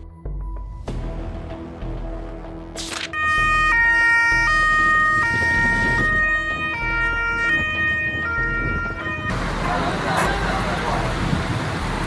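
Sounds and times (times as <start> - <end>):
two-tone emergency siren: 3.1 - 9.4.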